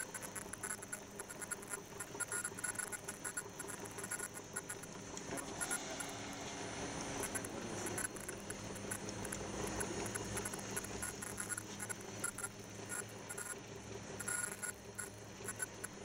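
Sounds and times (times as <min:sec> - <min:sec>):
electrical hum: 0:00.0 - 0:16.0
faint high whine: 0:00.0 - 0:16.0
rapid irregular ticking: 0:00.0 - 0:16.0.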